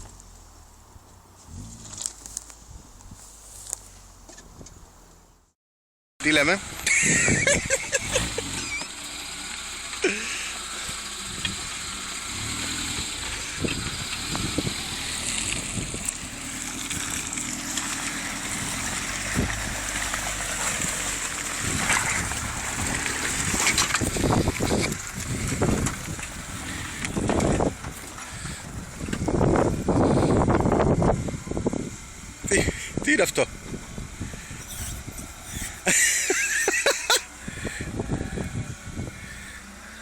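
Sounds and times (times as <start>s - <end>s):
off-road vehicle engine running: 0.0s - 5.5s, 6.2s - 40.0s
tyres splashing through water: 7.1s - 28.6s.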